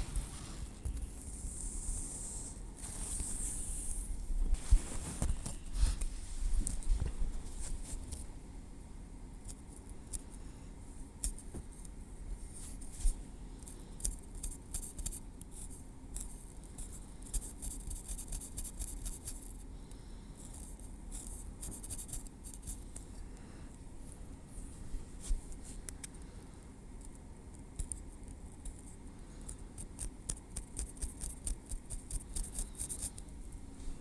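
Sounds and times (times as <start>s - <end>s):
tweezers clicking and scratching: 9.4s - 10.4s, 13.6s - 19.6s, 20.4s - 23.1s, 27.0s - 33.3s.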